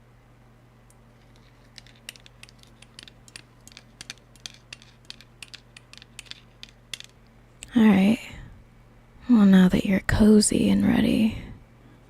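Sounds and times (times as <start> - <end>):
faint low hum: 0.0 - 12.0
light irregular clicks and taps: 0.9 - 7.7.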